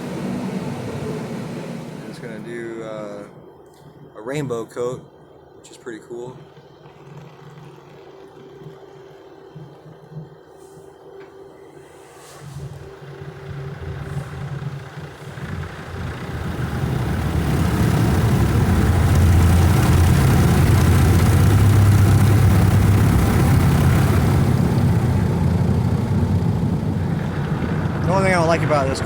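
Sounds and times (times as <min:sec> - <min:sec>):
car wash brushes and water beating: 0:00.0 - 0:02.4, 0:12.4 - 0:29.0.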